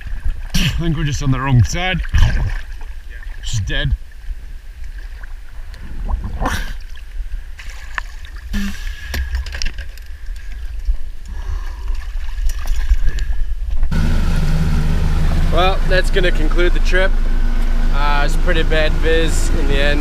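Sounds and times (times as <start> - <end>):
sea water splashing: 0.0 - 13.8.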